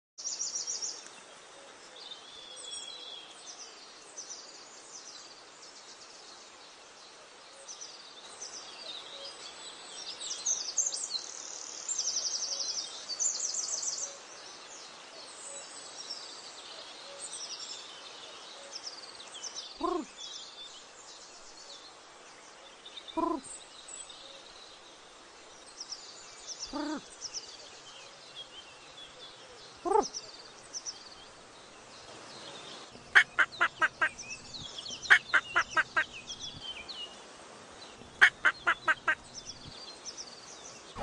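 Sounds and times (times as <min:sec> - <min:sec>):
birds chirping and trilling: 0:19.4 - 0:20.6, 0:23.0 - 0:24.8, 0:25.9 - 0:27.7, 0:28.4 - 0:41.0.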